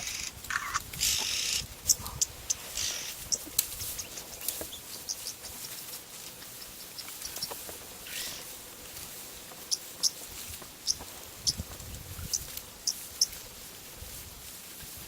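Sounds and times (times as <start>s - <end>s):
high bird chirps: 0.0s - 5.8s.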